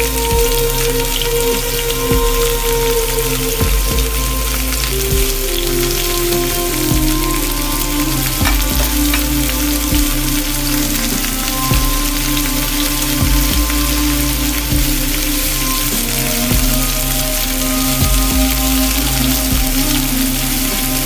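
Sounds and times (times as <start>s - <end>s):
background music with soft beat: 0.0s - 21.0s.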